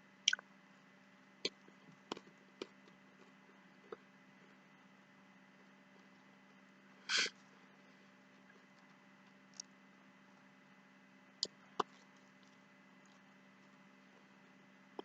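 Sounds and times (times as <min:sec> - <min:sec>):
low steady hum: 0:00.0 - 0:15.0
quiet eating noises: 0:11.4 - 0:15.0.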